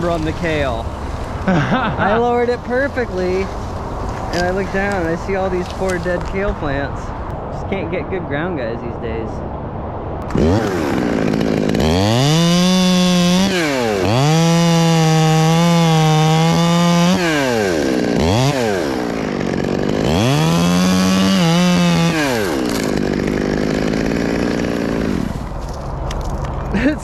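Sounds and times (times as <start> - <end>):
chainsaw revving: 0.0 - 6.4, 10.2 - 26.8.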